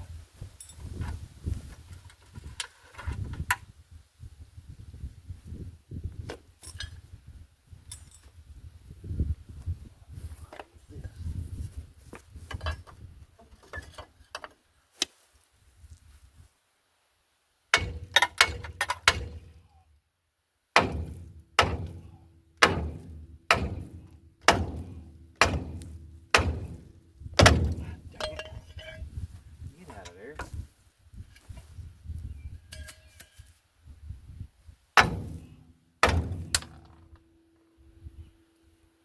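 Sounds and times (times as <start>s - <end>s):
hammer striking steel: 17.8s - 19.5s, 20.8s - 28.5s, 35.0s - 36.9s.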